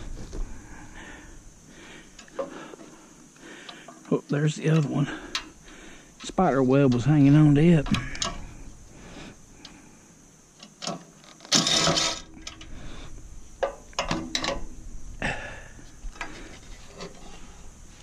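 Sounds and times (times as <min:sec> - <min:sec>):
metal parts clinking and knocking: 0:10.8 - 0:12.7, 0:13.6 - 0:14.7.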